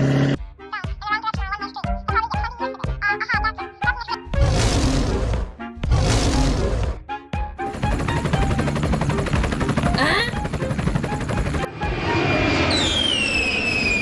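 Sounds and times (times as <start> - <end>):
long falling whistle: 12.0 - 14.0.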